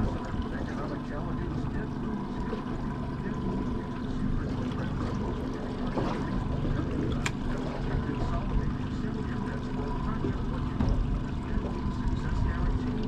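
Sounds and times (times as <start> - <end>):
boat engine running: 0.0 - 13.0
water against hull: 0.0 - 13.0
sharp click: 7.2 - 7.4.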